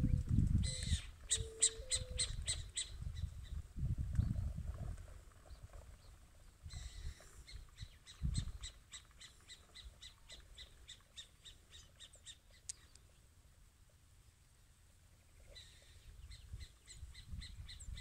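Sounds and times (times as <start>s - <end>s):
low microphone rumble: 0.0s - 1.0s
bird calling: 0.6s - 3.0s.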